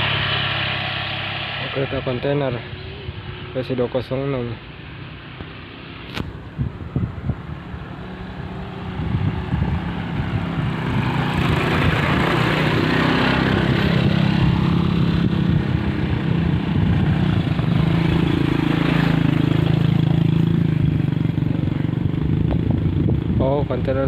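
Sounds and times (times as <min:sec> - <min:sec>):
train engine drone: 0:00.0 - 0:03.6.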